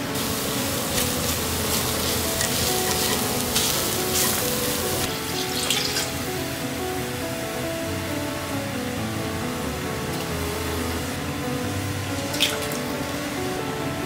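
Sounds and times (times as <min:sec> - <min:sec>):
soft background music: 0:00.0 - 0:14.0
spices sizzling in a pot: 0:00.1 - 0:06.4.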